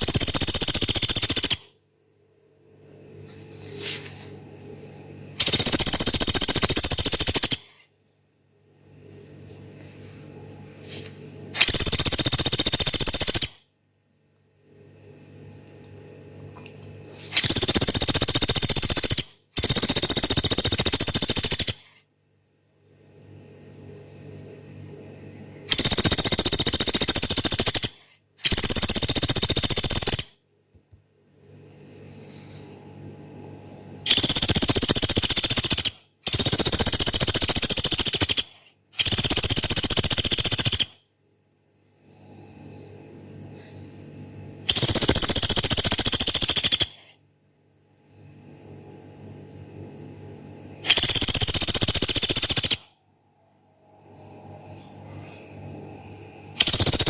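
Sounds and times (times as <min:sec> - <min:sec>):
woodpecker rattling trills: 0:00.0 - 0:01.7, 0:05.4 - 0:07.8, 0:11.6 - 0:13.6, 0:17.4 - 0:21.9, 0:25.7 - 0:30.3, 0:34.1 - 0:41.0, 0:44.7 - 0:47.0, 0:50.9 - 0:52.9, 0:56.6 - 0:57.0
faint low hum: 0:00.0 - 0:57.0.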